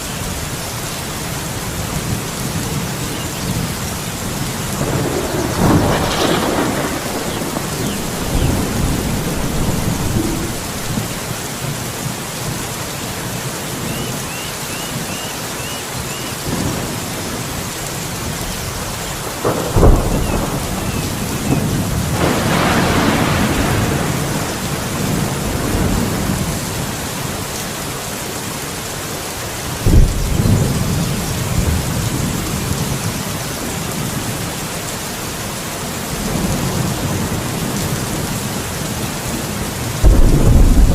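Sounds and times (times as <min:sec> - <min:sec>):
steady rain: 0:00.0 - 0:40.9
rolling thunder rumbles: 0:01.4 - 0:12.6, 0:16.5 - 0:27.4, 0:29.7 - 0:34.5, 0:36.1 - 0:40.9
thunderclaps: 0:01.8 - 0:11.8, 0:18.2 - 0:26.6, 0:29.8 - 0:33.2, 0:39.9 - 0:40.9
faint bird chirps: 0:13.9 - 0:16.4.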